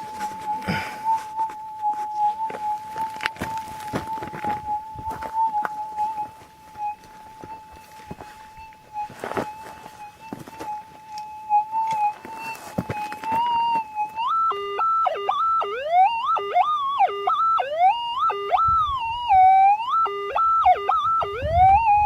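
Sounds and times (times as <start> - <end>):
metal detector hum: 0.0 - 22.0
metal detector wailing signals: 0.0 - 22.0.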